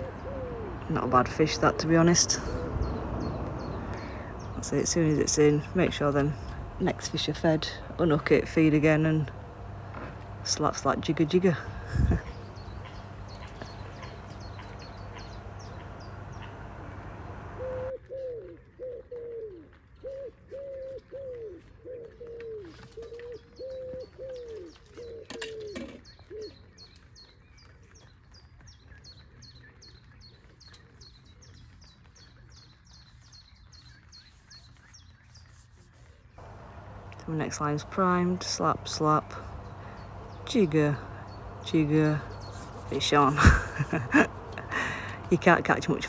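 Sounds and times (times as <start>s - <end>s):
steady noisy hiss: 0.0s - 17.9s, 36.4s - 46.0s
bird low falling notes: 0.0s - 18.2s, 36.4s - 46.0s.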